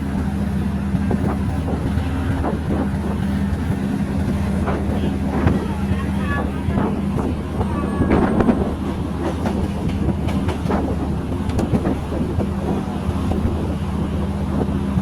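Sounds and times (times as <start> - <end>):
train running on rails: 0.0 - 15.0.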